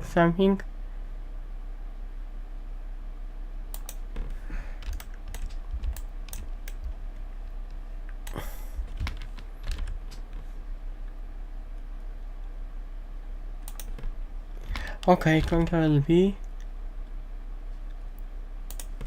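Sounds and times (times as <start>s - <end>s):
low electrical hum: 0.0s - 19.0s
computer keyboard keystrokes: 3.7s - 7.0s, 8.3s - 10.4s, 13.6s - 15.8s, 18.7s - 19.0s.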